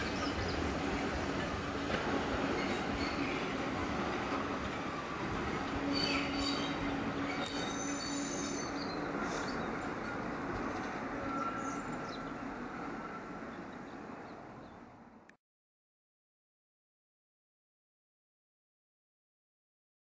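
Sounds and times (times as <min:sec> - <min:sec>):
train coaches rumbling: 0:00.0 - 0:15.2
wheel flanges squealing: 0:05.8 - 0:09.0.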